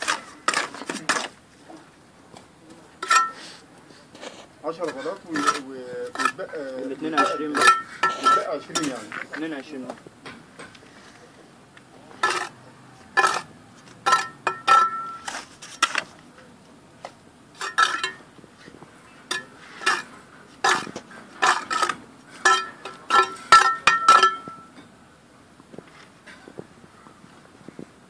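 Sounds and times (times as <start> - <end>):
metal tool clinking on bricks: 3.0 - 3.4, 4.8 - 9.5, 12.2 - 16.1, 17.6 - 18.3, 19.3 - 24.9.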